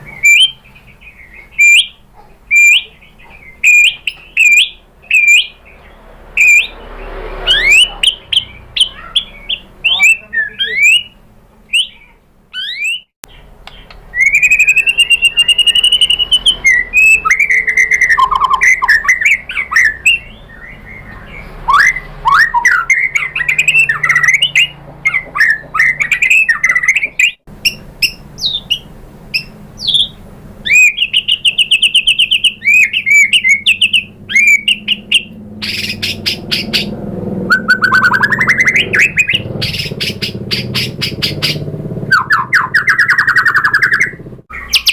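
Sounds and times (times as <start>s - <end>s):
songbird singing varied song: 0.0s - 44.9s.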